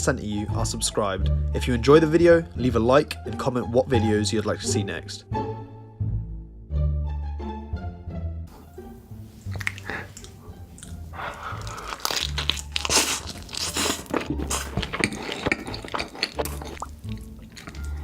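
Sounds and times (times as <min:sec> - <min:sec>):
crunching and chewing crisp food: 0:09.4 - 0:18.0.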